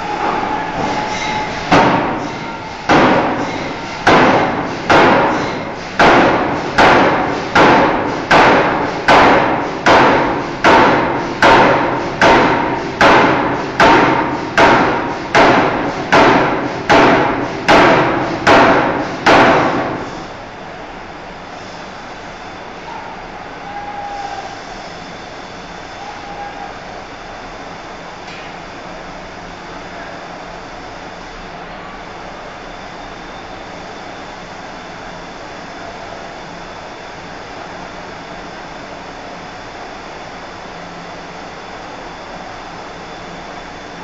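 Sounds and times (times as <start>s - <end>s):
forging hammer striking steel: 0.2s - 20.1s.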